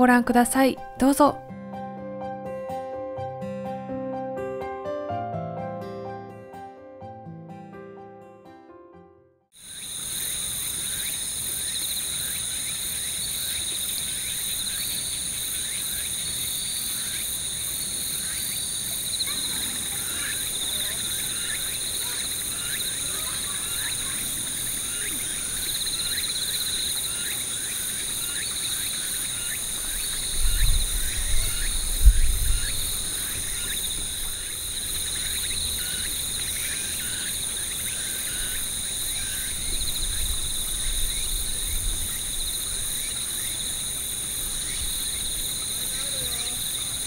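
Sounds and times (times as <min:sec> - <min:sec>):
insects trilling: 0:09.6 - 0:47.0.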